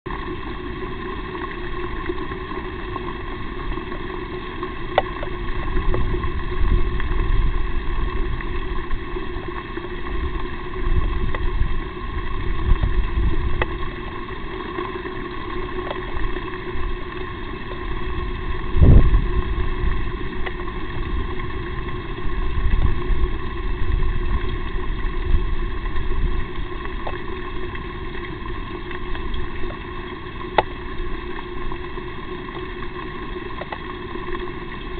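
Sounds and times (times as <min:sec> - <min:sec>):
low rumbling: 0:18.0 - 0:29.8.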